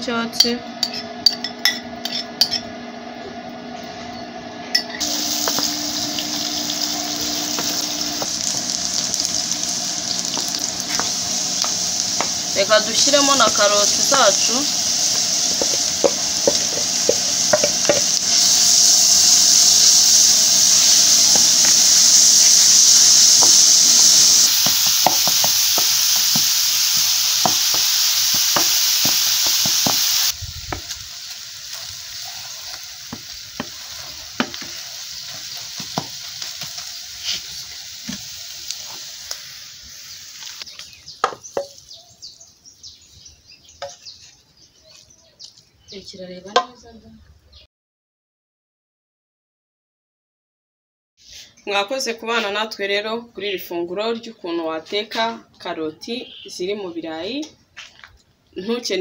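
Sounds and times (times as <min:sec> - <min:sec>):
vegetables sizzling in hot oil: 0:05.0 - 0:43.2.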